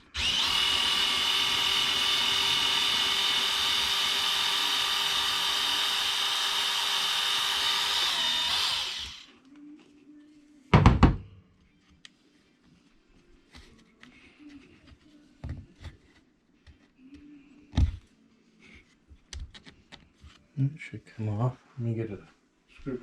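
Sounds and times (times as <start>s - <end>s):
small electric motor whining: 0.0s - 9.3s.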